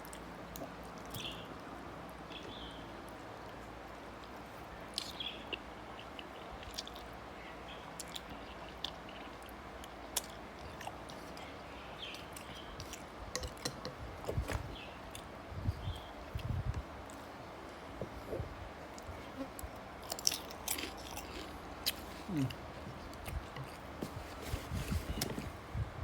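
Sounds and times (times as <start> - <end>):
person chewing noodles: 4.2 - 7.2, 16.3 - 25.4.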